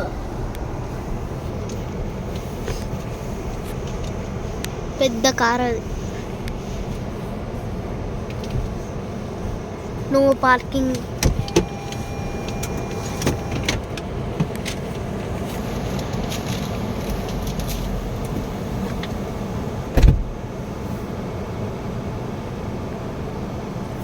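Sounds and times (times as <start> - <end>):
car engine and road noise: 0.0 - 24.0
faint steady tone: 11.2 - 13.8
loud thump: 19.9 - 20.4.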